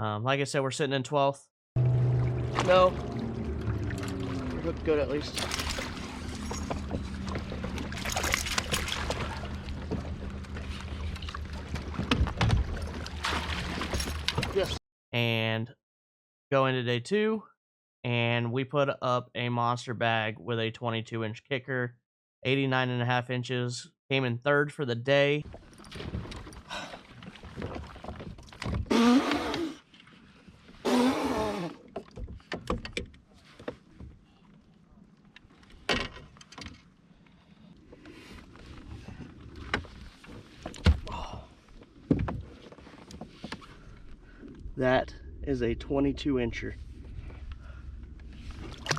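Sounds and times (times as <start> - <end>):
low hum: 1.8 - 14.5, 43.6 - 48.9
water splashing and trickling: 1.8 - 14.8, 36.6 - 48.9.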